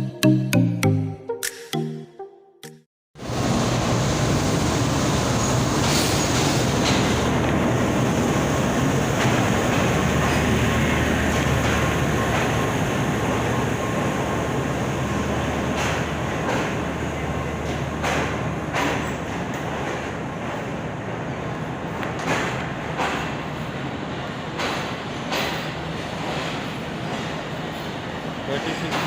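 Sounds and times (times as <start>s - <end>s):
train rumbling on track: 3.2s - 29.0s.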